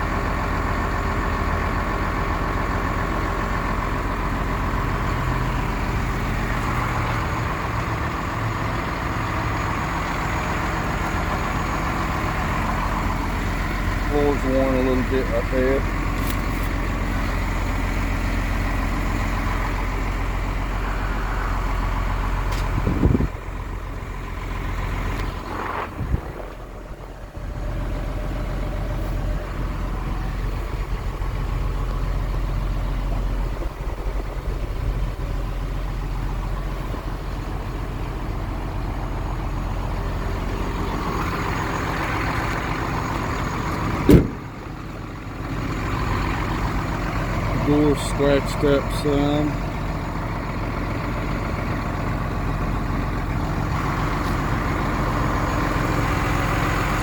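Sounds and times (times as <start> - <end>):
diesel truck engine idling: 0.0 - 57.0
sharp knocks: 44.0 - 44.5.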